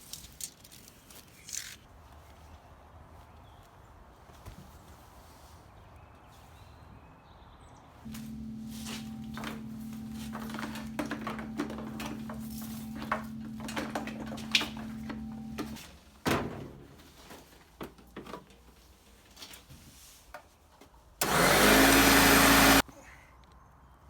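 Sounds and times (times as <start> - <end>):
lawnmower motor running: 8.1 - 15.8, 21.2 - 22.8.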